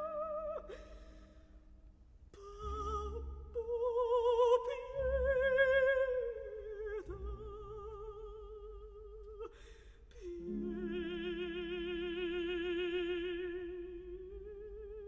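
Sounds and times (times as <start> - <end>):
soft sustained accompaniment: 10.1 - 15.0
operatic voice singing: 10.2 - 15.0.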